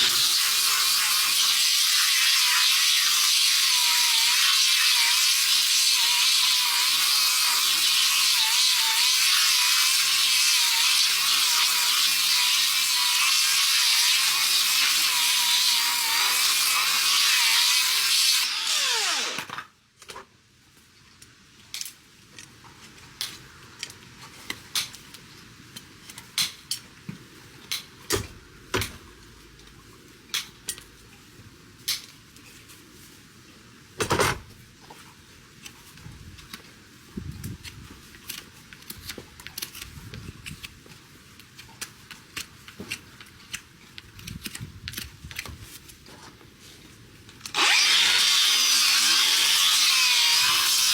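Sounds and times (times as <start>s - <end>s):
power tool whining: 2.4s - 19.7s, 47.5s - 50.9s.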